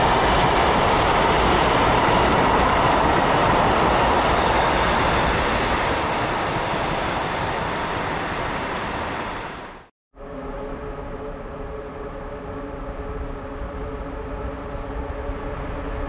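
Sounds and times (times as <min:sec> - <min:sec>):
freight train rumbling on rails: 0:00.0 - 0:16.0.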